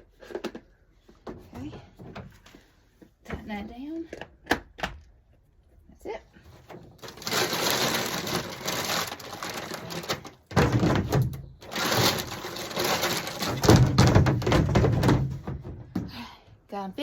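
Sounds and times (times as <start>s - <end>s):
birdseed rattling in plastic feeder: 7.0s - 10.4s, 11.6s - 13.6s.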